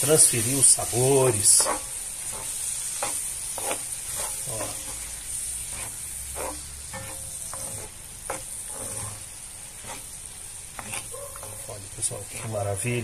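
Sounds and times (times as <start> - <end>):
food sizzling in a skillet: 0.0 - 13.0
wooden spatula scraping and stirring: 0.0 - 13.0.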